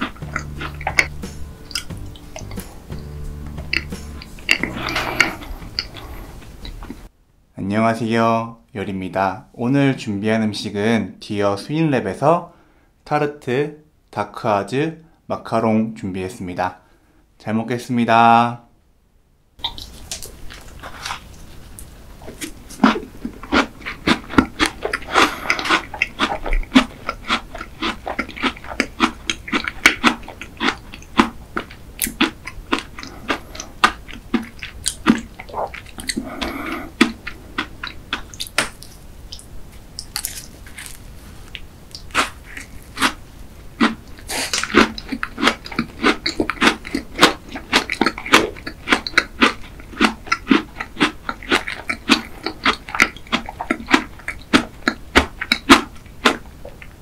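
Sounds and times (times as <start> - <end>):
wet mouth sounds: 0.0 - 7.1, 19.6 - 57.0
crunching crisp crust: 19.6 - 57.0.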